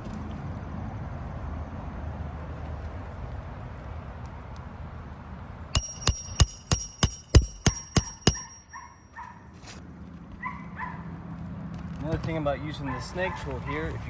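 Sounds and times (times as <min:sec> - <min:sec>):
hammer striking metal tool: 0:05.8 - 0:09.0.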